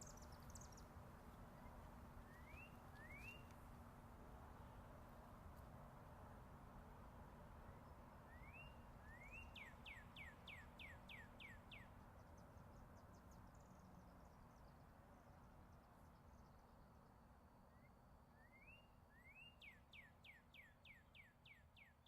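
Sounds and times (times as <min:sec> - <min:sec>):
distant highway traffic hum: 0:00.0 - 0:22.0
songbird whistling song: 0:02.3 - 0:03.5, 0:08.3 - 0:12.4, 0:17.7 - 0:22.0.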